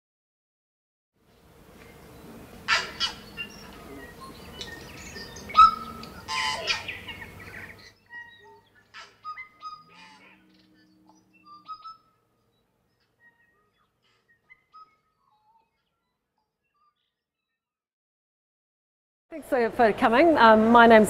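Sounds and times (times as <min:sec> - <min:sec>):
faint ambient background: 0:01.2 - 0:16.7
birds chirping and whistling: 0:01.8 - 0:17.5
low steady tone: 0:09.6 - 0:13.8.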